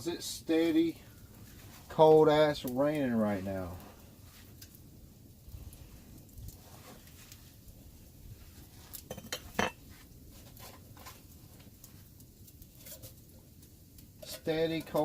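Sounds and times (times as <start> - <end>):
rain patter: 0.0 - 9.1, 9.8 - 15.0
metal cookware clinking: 9.1 - 9.8.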